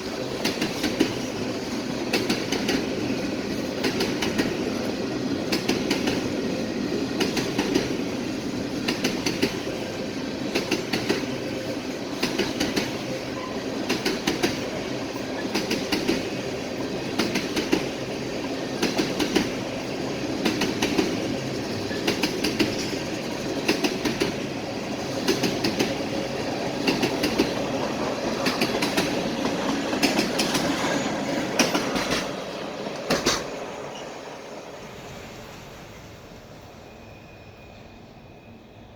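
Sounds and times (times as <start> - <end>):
freight train rumbling past: 0.0 - 38.9
wheels clicking over rail joints: 12.1 - 34.1.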